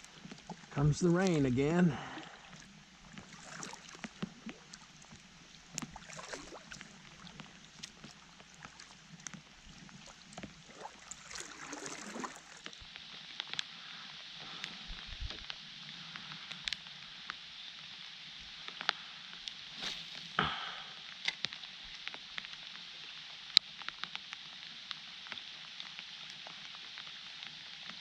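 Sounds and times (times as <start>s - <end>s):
water moving around kayak hull: 0.0s - 15.6s
rain falling on water: 0.0s - 28.0s.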